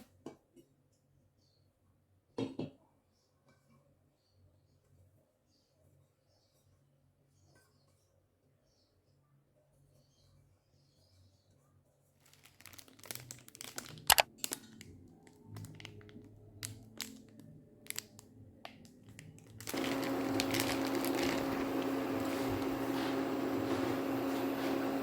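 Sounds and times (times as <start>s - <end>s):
crinkling and clicking handling: 12.2s - 25.0s
appliance motor humming: 19.6s - 25.0s.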